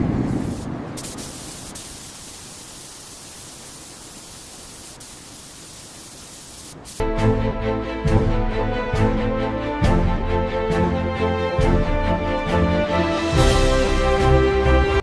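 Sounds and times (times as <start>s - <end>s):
steady hiss: 0.0s - 7.0s
music: 7.0s - 15.0s.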